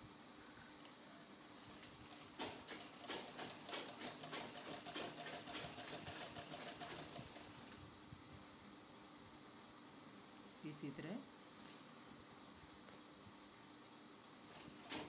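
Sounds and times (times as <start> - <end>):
sewing machine stitching: 2.1 - 7.5.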